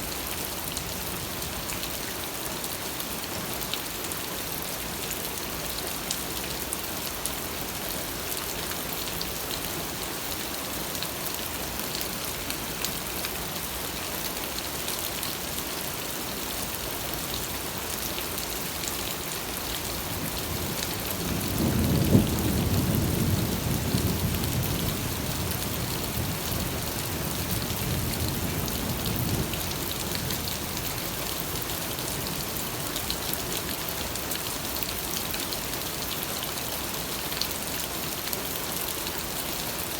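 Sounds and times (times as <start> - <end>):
steady rain falling: 0.0 - 39.9
thunder rumbling: 21.2 - 25.2.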